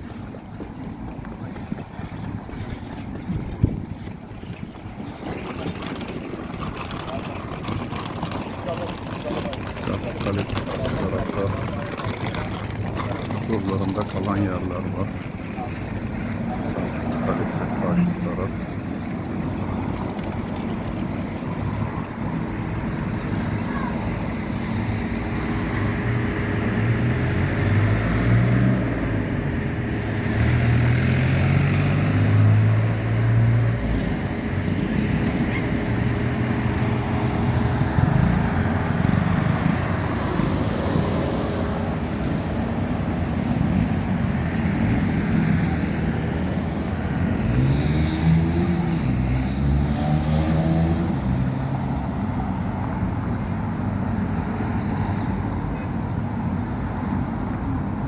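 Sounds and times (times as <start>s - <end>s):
road noise: 0.0s - 58.0s
car engine revving: 46.6s - 51.7s.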